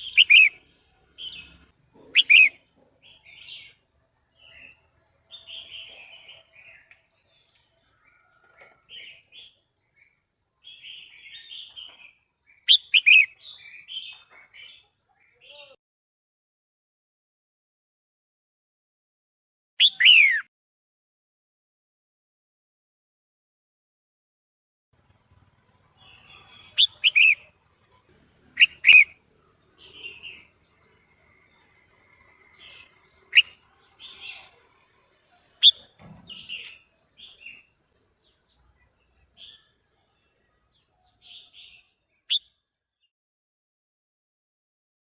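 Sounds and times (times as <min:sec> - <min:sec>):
bird chattering: 0:00.0 - 0:00.6, 0:02.0 - 0:02.6, 0:12.7 - 0:13.4, 0:26.0 - 0:27.5, 0:28.6 - 0:29.2, 0:33.2 - 0:34.4
bird sharp whistled notes: 0:00.0 - 0:00.6, 0:02.2 - 0:02.6, 0:12.7 - 0:13.4, 0:26.2 - 0:27.4
bird chirping calls: 0:00.0 - 0:15.8, 0:19.8 - 0:20.5, 0:25.1 - 0:42.6.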